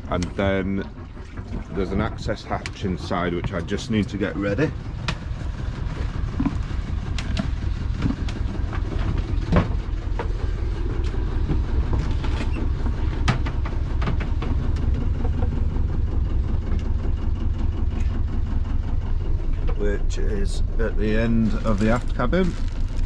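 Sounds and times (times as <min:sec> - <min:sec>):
engine rumble throbbing: 0:00.0 - 0:23.0
sharp clicks and knocks: 0:01.2 - 0:10.4, 0:11.0 - 0:15.8.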